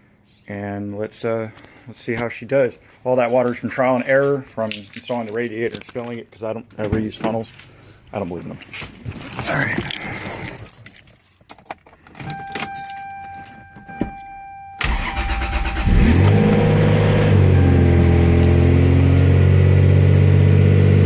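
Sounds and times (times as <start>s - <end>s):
starter motor cranking: 14.8s - 17.4s
car engine idling: 14.8s - 21.0s
steady high tone: 15.8s - 19.4s.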